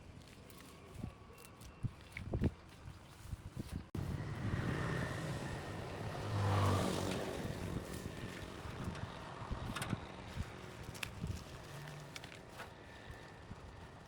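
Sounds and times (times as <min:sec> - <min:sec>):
vehicle passing by: 0:04.0 - 0:12.3.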